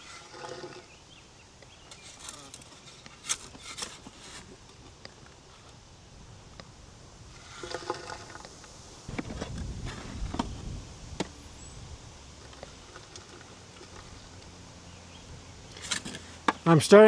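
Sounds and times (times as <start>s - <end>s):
dirt and stones tumbling: 9.1s - 11.3s.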